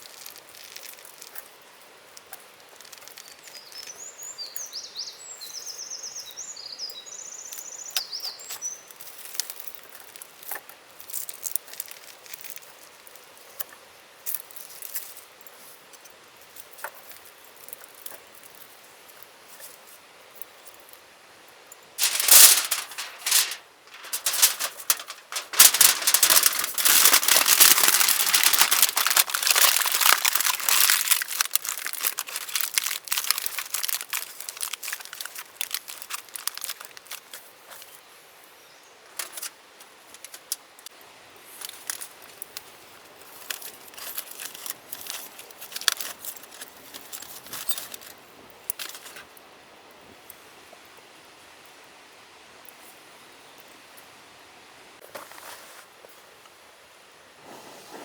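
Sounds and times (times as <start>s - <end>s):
wrapper crinkling: 0.0s - 1.4s, 2.8s - 3.6s, 22.0s - 37.4s, 39.2s - 39.5s, 43.4s - 48.1s.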